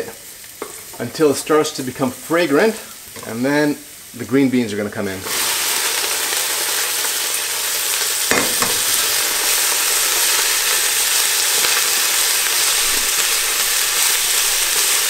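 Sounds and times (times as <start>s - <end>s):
green beans sizzling in oil: 0.0s - 15.0s
short knocks: 8.3s - 8.9s.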